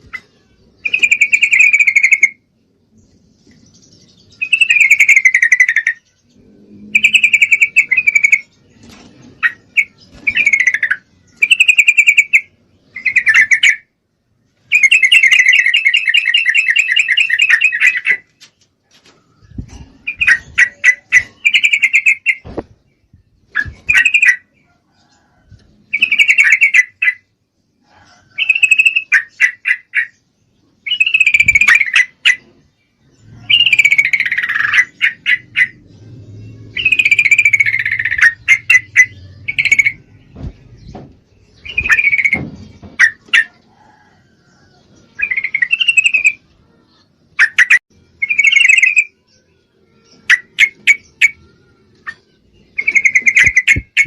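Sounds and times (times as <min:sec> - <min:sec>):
bird chattering calls: 0:20.0 - 0:22.6, 0:33.3 - 0:35.8, 0:36.7 - 0:40.1.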